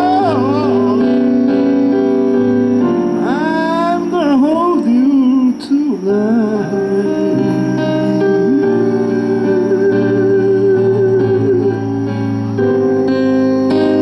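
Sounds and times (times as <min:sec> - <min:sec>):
keyboard chords: 0:00.0 - 0:14.0
lead melody bending in pitch: 0:00.0 - 0:14.0.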